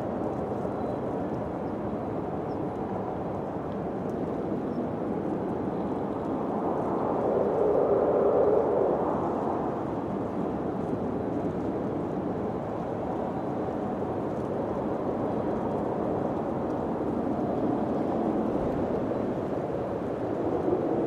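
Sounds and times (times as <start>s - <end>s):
wind blowing: 4.8s - 21.0s.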